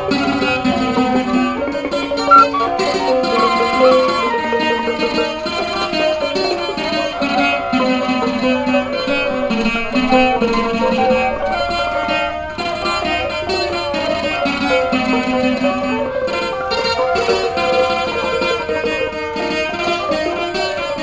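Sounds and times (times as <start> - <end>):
plucked string melody: 0.9 - 6.8.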